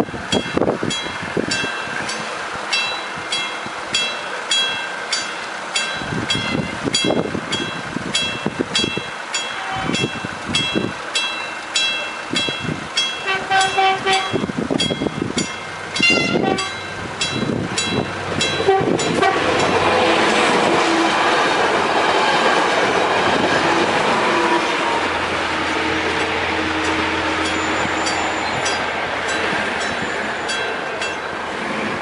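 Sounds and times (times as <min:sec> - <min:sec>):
train passing: 0:00.0 - 0:32.0
bell-like warning signal: 0:00.3 - 0:19.8, 0:26.8 - 0:31.4
train horn note: 0:09.5 - 0:10.0, 0:13.2 - 0:14.5, 0:16.0 - 0:16.8, 0:18.6 - 0:21.2, 0:23.7 - 0:25.0.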